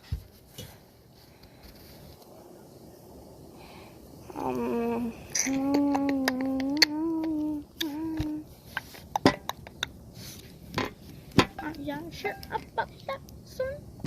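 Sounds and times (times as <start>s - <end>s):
person humming: 4.2s - 8.5s.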